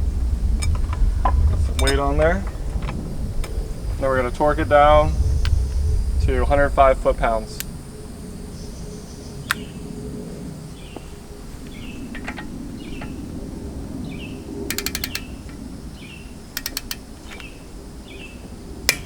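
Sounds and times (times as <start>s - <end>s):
torque wrench ratcheting: 14.7s - 15.6s, 16.5s - 17.5s.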